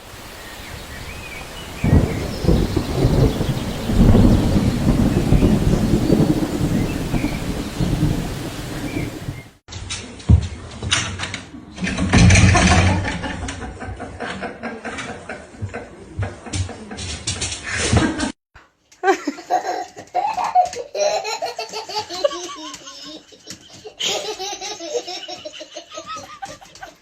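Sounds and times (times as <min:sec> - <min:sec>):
rustling clatter and knocks: 0:09.7 - 0:18.3
person laughing: 0:19.0 - 0:27.0.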